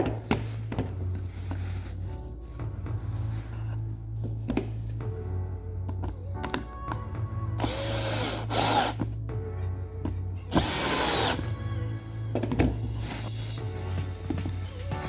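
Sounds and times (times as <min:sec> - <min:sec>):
power drill driving screws into wood: 0:07.6 - 0:09.0, 0:10.5 - 0:11.5.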